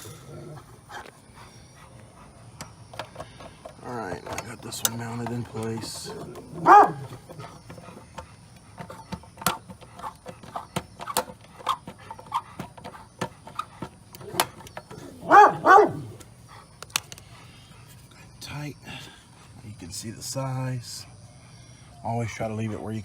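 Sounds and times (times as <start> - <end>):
dog barking: 6.5 - 7.2, 15.1 - 16.2.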